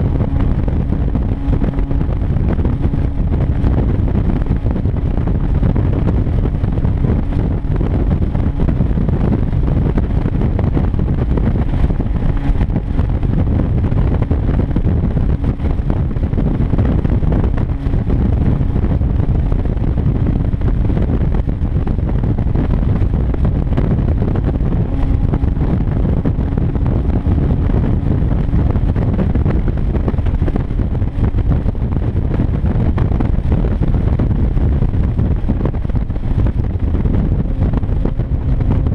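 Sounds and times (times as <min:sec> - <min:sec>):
car engine cruising: 0:00.0 - 0:38.9.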